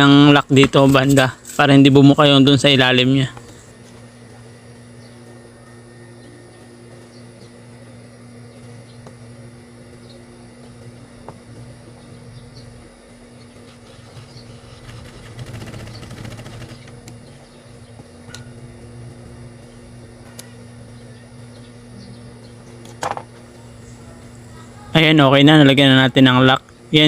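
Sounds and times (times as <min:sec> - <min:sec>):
sewing machine stitching: 0:13.7 - 0:17.0.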